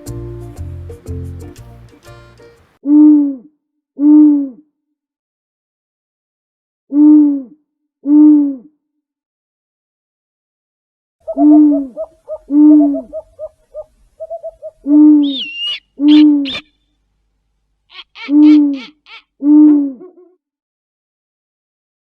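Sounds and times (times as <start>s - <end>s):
low hooting calls: 11.2s - 16.8s, 17.9s - 20.4s.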